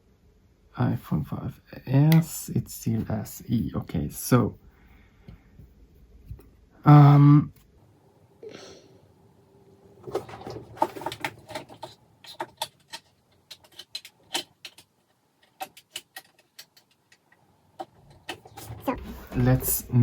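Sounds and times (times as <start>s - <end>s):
small parts clicking and tapping: 10.2s - 18.7s.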